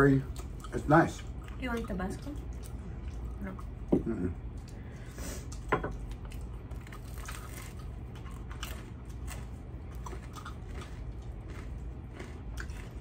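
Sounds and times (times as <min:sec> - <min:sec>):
faint low hum: 0:00.0 - 0:13.0
food crunching: 0:00.0 - 0:13.0
chewing and biting: 0:05.4 - 0:13.0.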